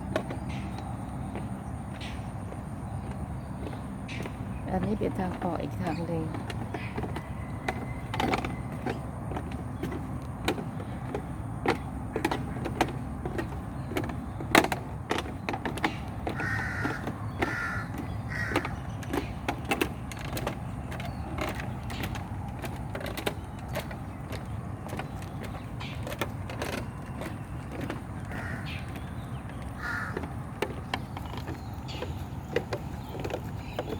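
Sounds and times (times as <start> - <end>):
crow cawing: 16.4 - 18.7, 28.3 - 28.9, 29.8 - 30.3.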